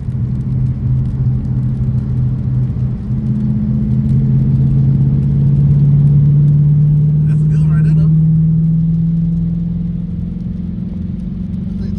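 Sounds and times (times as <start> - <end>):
car engine running at low revs: 0.0 - 11.9.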